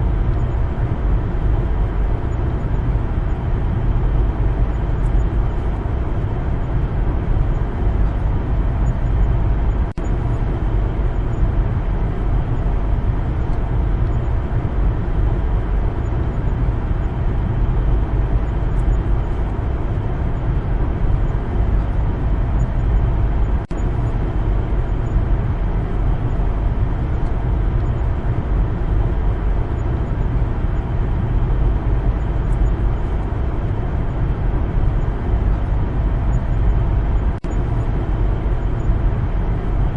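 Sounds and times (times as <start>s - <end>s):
car tyre and engine noise: 0.0s - 39.9s.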